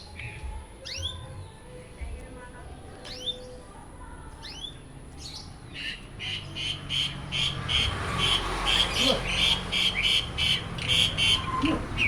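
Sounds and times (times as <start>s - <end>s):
songbird chirping: 0.0s - 12.0s
songbird repeated sharp notes: 5.8s - 12.0s.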